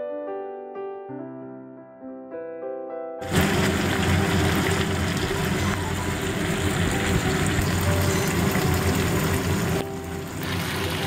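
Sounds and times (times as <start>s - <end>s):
chicken sizzling in oil: 3.2s - 11.0s.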